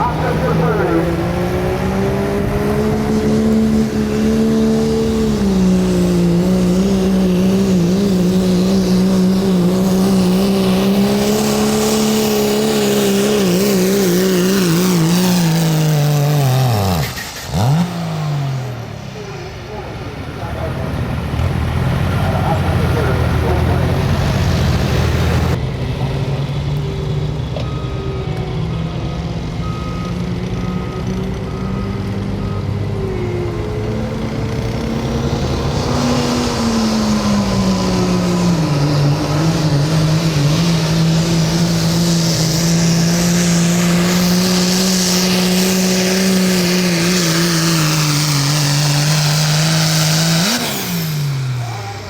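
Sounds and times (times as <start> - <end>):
diesel truck engine running hard: 0.0 - 52.0
backup alarm beeping: 26.8 - 34.2.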